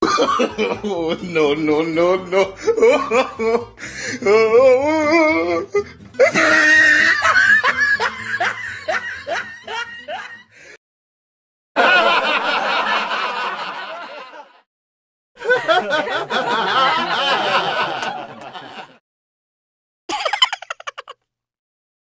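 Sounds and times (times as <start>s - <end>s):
person laughing: 0.0s - 3.7s, 6.2s - 10.4s, 20.1s - 21.2s
audience laughing: 6.3s - 10.5s, 11.8s - 14.7s, 15.4s - 19.0s, 20.1s - 21.1s.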